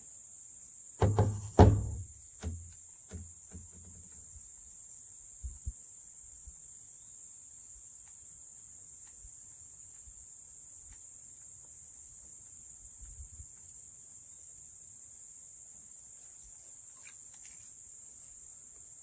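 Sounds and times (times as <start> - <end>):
faint low knocks: 1.0 - 4.2.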